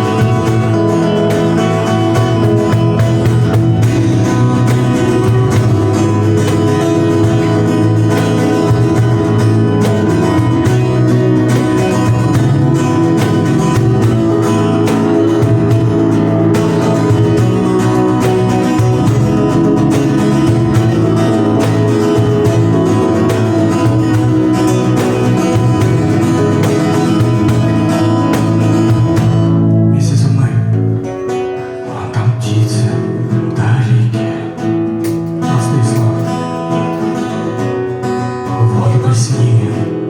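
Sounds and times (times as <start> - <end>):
acoustic guitar strummed and picked: 0.0 - 40.0.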